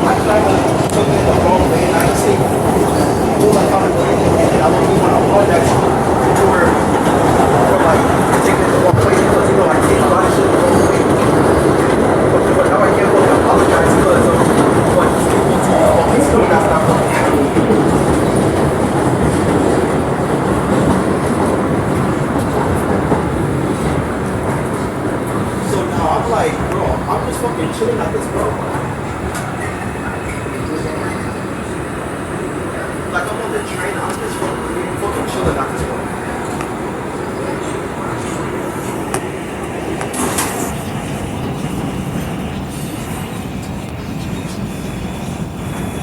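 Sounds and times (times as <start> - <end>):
subway wheels rumbling on rails: 0.0 - 46.0.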